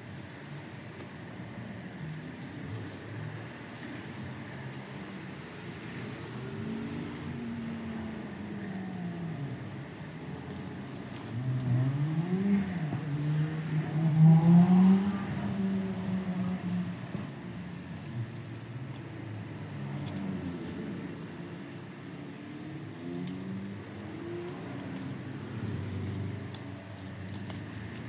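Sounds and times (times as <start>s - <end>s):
car engine revving: 11.2s - 17.1s, 19.2s - 26.6s.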